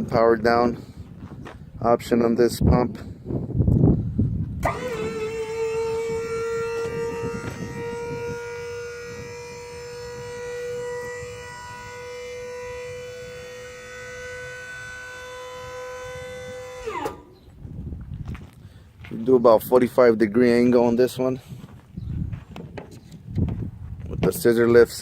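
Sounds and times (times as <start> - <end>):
electric hydraulic pump whining: 4.6 - 17.6.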